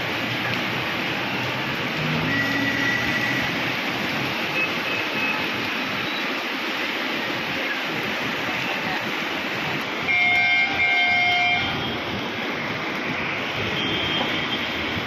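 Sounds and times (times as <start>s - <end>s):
steady rain: 0.0s - 15.0s
wind: 0.0s - 15.0s
horn blasts: 10.0s - 12.0s.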